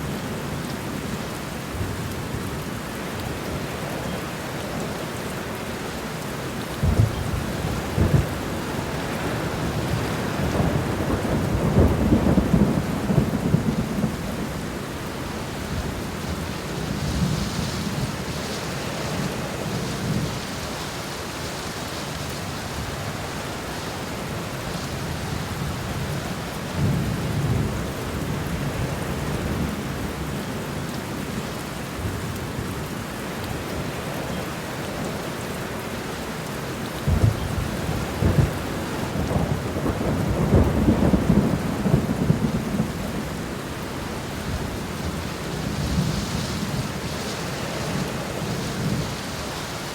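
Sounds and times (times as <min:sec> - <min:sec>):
steady rain: 0:00.0 - 0:49.9
thunder rumbling: 0:06.8 - 0:18.5, 0:37.1 - 0:49.4.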